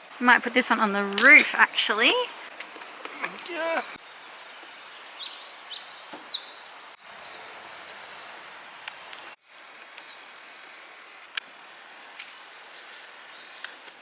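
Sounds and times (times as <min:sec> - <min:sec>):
birds chirping: 0:00.0 - 0:07.8
steady outdoor hiss: 0:00.0 - 0:14.0.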